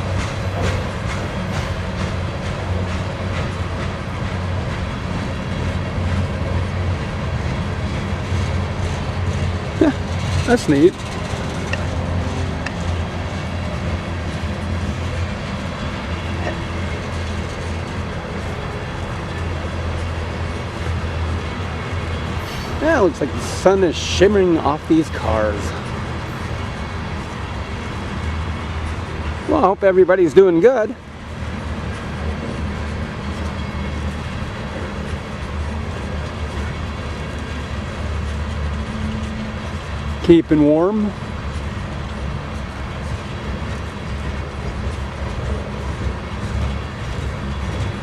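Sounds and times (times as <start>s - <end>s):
train cars rumbling on rails: 0.0s - 48.0s.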